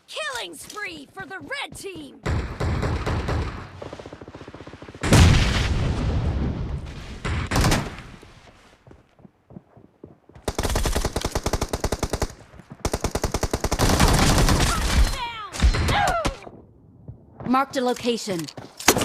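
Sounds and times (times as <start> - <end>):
rapid automatic gunfire: 10.5 - 14.8.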